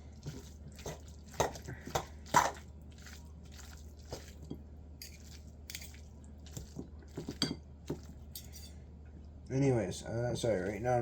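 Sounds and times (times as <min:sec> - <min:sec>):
forks shredding meat: 0:00.0 - 0:08.4.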